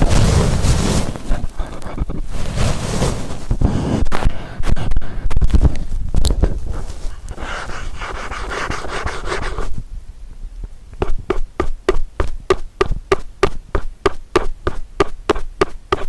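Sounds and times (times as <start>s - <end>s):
scratchy rubbing on microphone: 0.0s - 9.8s.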